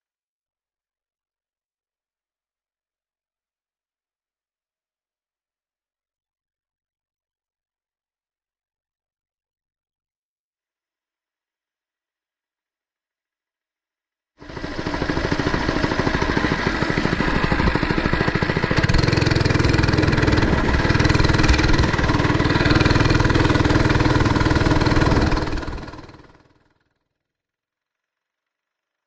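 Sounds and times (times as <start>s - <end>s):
mini bike engine running: 14.4s - 26.9s.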